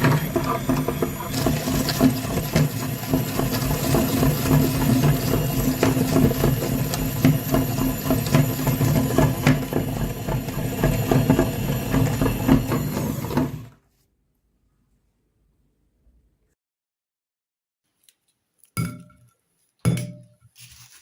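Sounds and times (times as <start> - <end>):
small motor running: 0.0 - 13.7.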